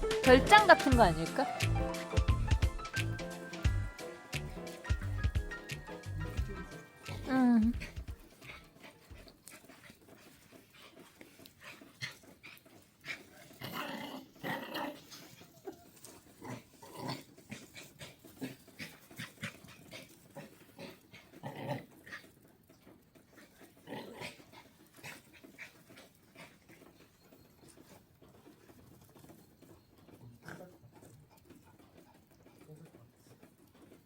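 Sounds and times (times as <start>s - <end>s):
small dog making faint sounds: 6.5s - 22.5s, 23.3s - 34.0s.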